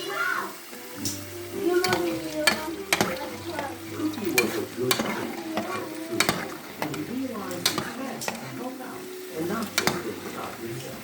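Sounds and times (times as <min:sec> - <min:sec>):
potatoes sizzling in oil: 0:00.0 - 0:11.0
utensil knocking against pan: 0:01.0 - 0:08.6, 0:09.4 - 0:10.6.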